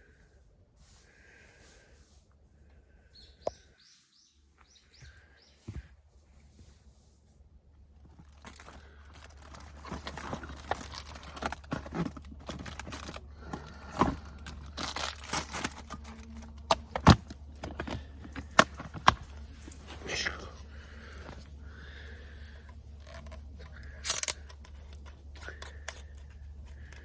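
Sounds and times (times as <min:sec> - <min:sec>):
crinkling rustling wrapper: 0:08.0 - 0:27.0.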